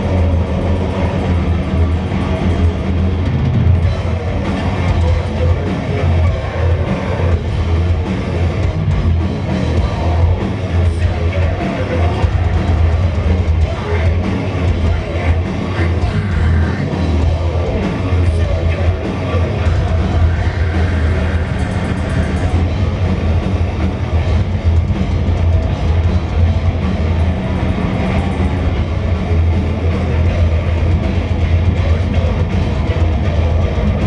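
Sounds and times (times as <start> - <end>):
distorted guitars: 0.0 - 34.0
fast dense drumming: 0.0 - 34.0.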